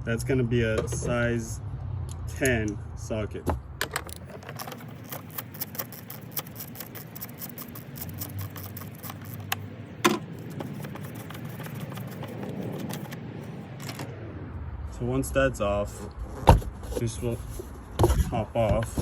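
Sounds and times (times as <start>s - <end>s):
ratchet clicking rapidly: 4.4s - 9.6s.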